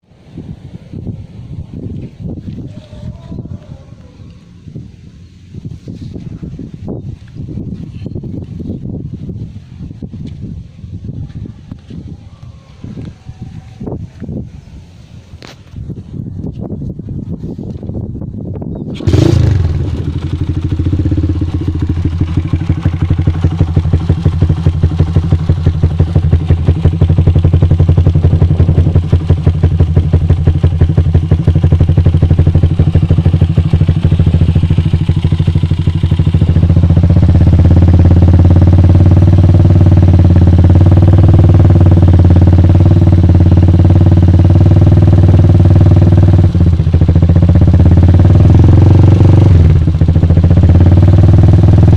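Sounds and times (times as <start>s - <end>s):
motorcycle engine idling: 15.8s - 51.9s.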